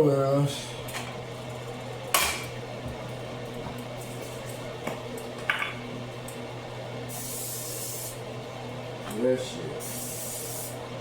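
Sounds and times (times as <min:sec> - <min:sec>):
aerosol spray hissing: 0:07.2 - 0:08.2, 0:09.8 - 0:10.8.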